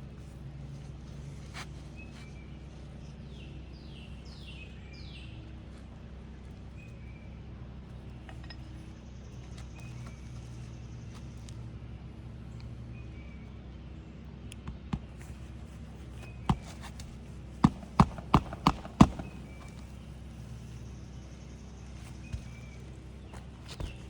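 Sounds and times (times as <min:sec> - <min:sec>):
hammer striking roofing nails: 0:17.6 - 0:20.0.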